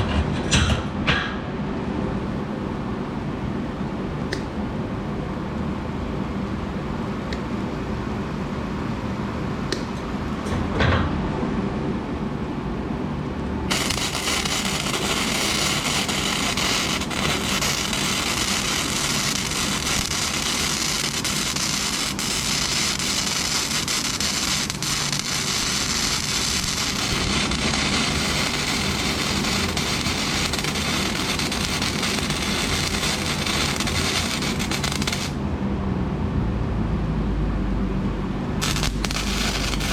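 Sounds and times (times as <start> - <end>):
welder humming: 13.7 - 35.4, 38.6 - 39.9
welding arc crackling: 13.7 - 35.4, 38.6 - 39.9.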